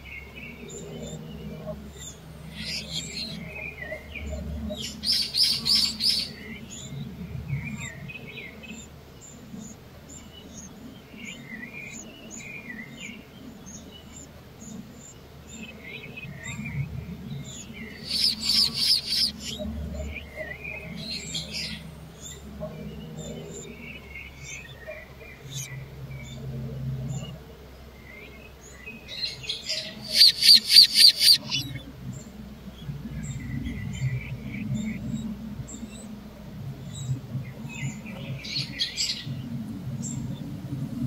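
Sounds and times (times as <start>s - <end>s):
birds trilling: 0.0s - 36.2s, 36.8s - 40.6s
bird chirps: 0.5s - 7.1s, 17.4s - 26.4s, 28.1s - 32.3s.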